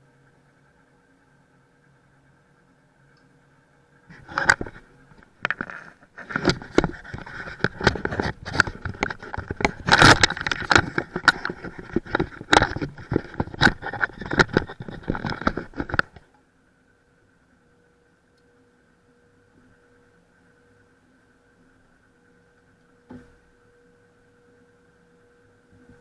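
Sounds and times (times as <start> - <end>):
hard objects knocking and scraping: 4.1 - 16.2.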